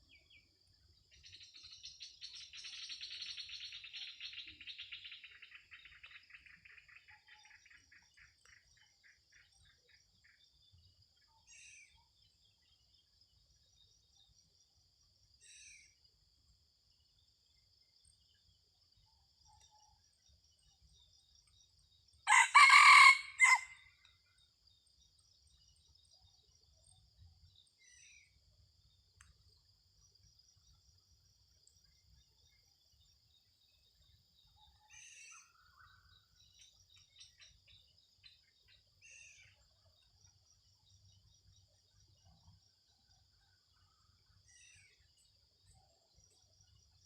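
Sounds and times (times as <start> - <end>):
faint bird chirps: 0.0 - 14.4, 15.3 - 47.0
rooster crowing: 22.3 - 23.9.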